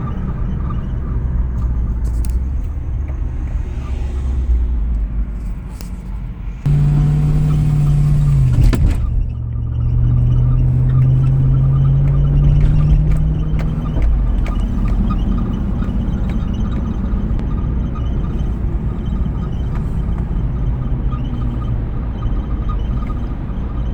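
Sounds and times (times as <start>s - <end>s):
low road rumble: 0.0s - 23.9s
car engine note: 6.6s - 14.2s.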